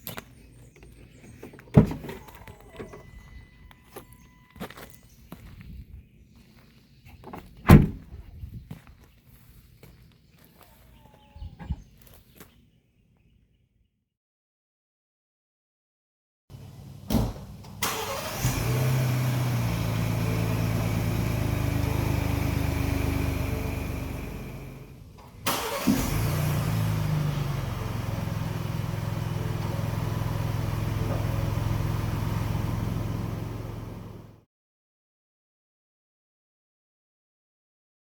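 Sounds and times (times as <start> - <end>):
car engine starting and running: 1.2 - 4.4, 7.2 - 8.2, 16.5 - 34.4.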